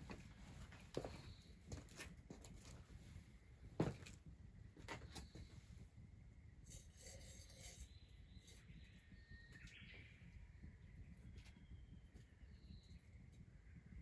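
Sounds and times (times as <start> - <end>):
faint bird whistles and chirps: 7.5 - 14.0.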